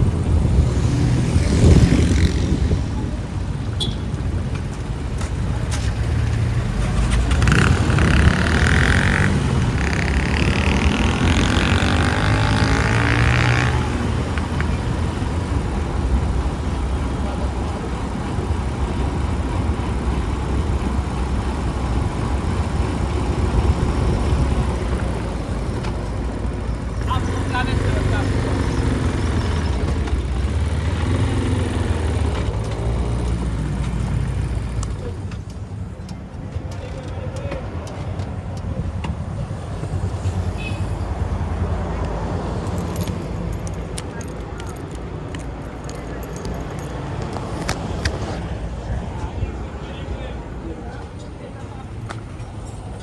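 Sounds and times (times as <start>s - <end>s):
motorbike engine rumble: 0.0s - 53.0s
road and wind noise: 0.0s - 53.0s
street traffic: 0.0s - 53.0s
motorcycle engine running: 6.6s - 15.4s.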